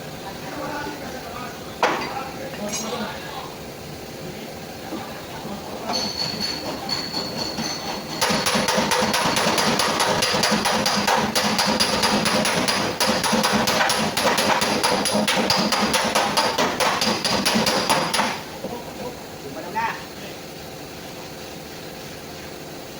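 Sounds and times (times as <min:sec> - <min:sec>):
hammer on sheet metal: 0:06.8 - 0:18.4.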